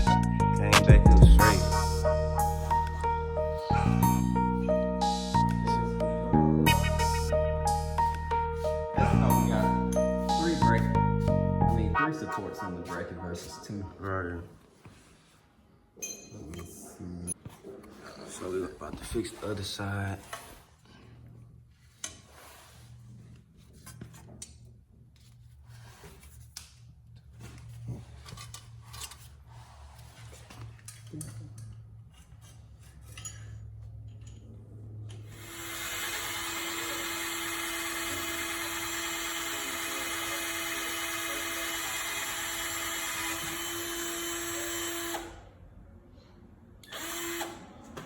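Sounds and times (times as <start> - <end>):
power drill running: 35.3 - 45.4, 46.8 - 47.7.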